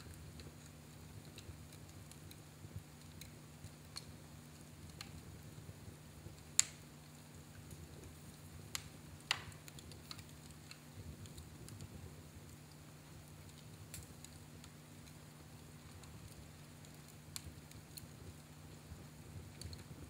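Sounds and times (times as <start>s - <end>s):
faint low hum: 0.0s - 20.0s
fire crackling in fireplace: 0.0s - 20.0s.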